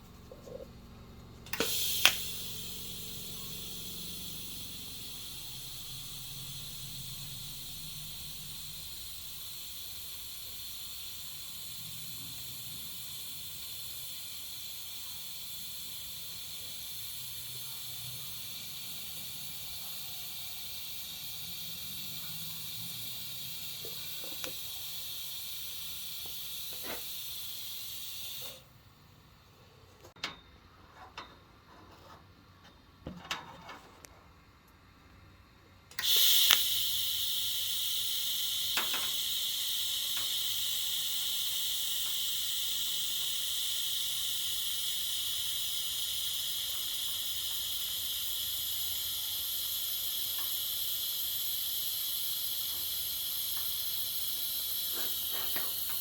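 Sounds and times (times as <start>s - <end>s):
welding arc hissing: 0.0s - 28.7s, 35.9s - 56.0s
welding arc crack: 0.2s - 28.6s, 35.9s - 56.0s.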